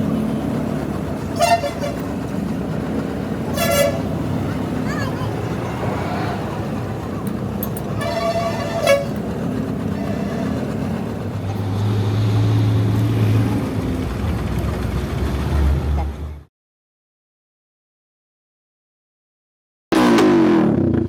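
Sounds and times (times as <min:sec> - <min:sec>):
short horn toot: 0:01.3 - 0:02.1, 0:03.5 - 0:04.1, 0:08.0 - 0:09.2.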